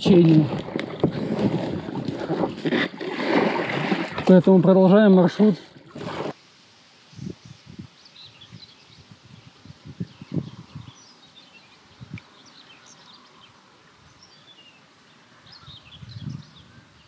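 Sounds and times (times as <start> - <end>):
small birds chirping: 7.1 - 17.0.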